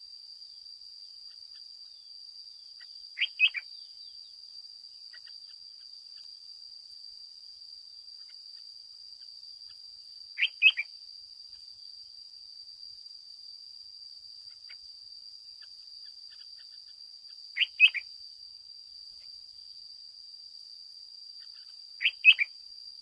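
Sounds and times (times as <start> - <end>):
bird chirping: 1.3 - 4.4, 10.4 - 10.9, 15.6 - 18.1, 21.4 - 22.6.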